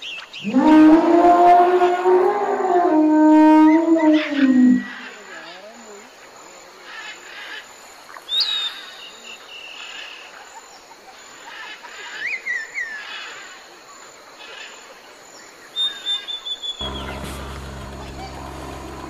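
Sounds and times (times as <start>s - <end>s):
wild birds calling: 0.0s - 5.8s.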